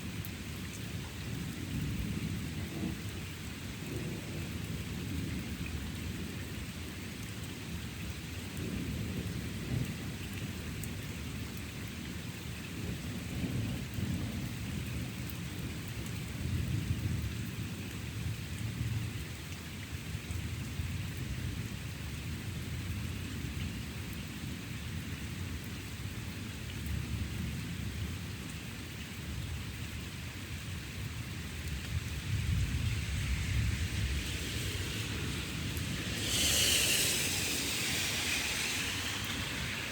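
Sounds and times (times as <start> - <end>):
rain falling: 0.0 - 39.9
thunder rumbling: 31.7 - 39.9.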